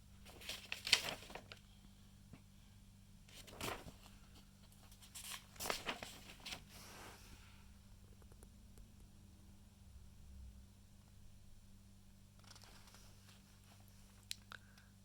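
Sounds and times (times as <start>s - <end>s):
paper pages rustling: 0.2s - 1.6s, 3.3s - 7.4s, 12.4s - 13.9s.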